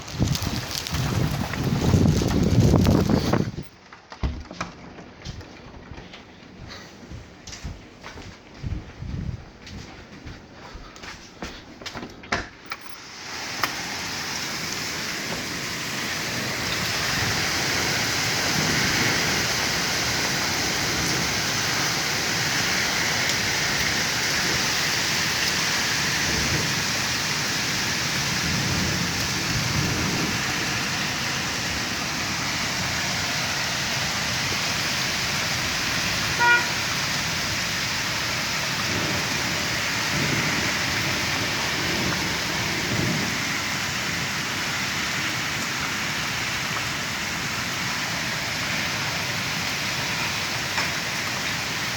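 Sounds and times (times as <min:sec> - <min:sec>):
rain and hail hissing: 0:00.0 - 0:03.7, 0:12.8 - 0:51.9
wind gusts on microphone: 0:00.0 - 0:03.7, 0:08.6 - 0:09.9, 0:14.1 - 0:32.0.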